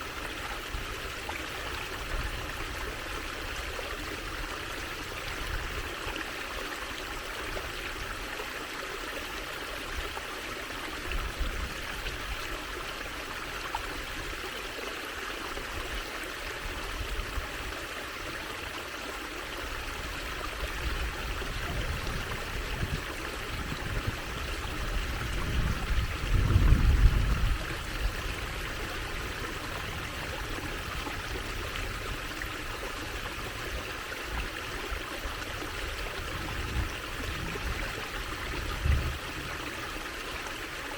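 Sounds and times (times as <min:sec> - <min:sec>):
stream trickling over stones: 0:00.0 - 0:40.9.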